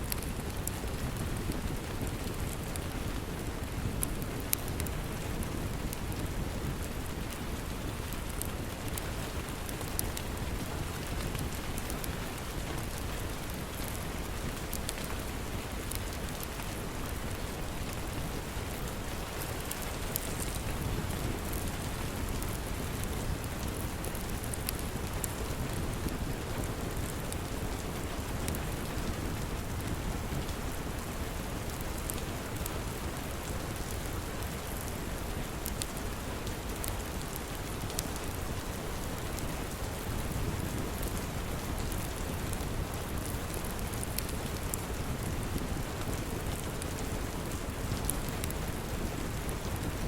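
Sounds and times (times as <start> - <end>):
steady rain: 0.0 - 50.0
light ticks: 35.6 - 36.0, 36.8 - 38.3.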